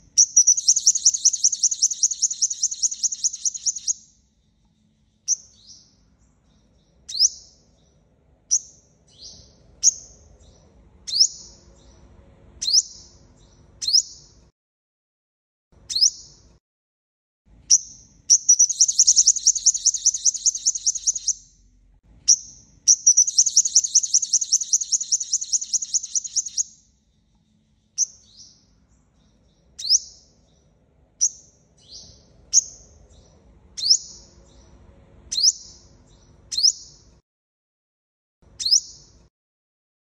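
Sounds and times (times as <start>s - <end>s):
bird buzzy trills: 0.0s - 4.0s, 18.3s - 21.5s, 22.3s - 26.7s
bird sharp chips: 0.3s - 4.0s, 18.5s - 21.4s, 23.1s - 26.6s.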